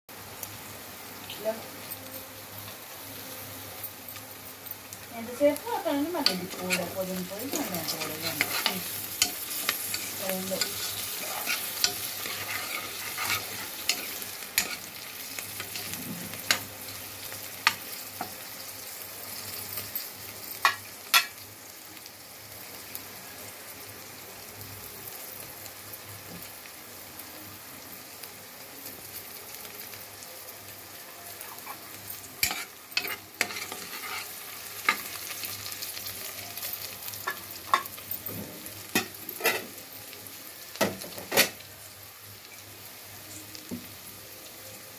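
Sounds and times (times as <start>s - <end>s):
food sizzling in oil: 0.1s - 44.9s
spoon stirring against metal pot: 6.2s - 15.0s, 32.4s - 35.1s.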